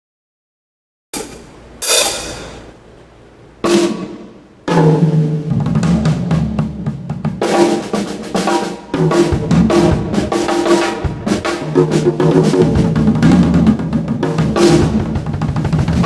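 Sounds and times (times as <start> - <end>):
cymbal hit ringing: 1.2 - 2.8
drum kit drumming: 1.2 - 2.8, 3.6 - 16.0.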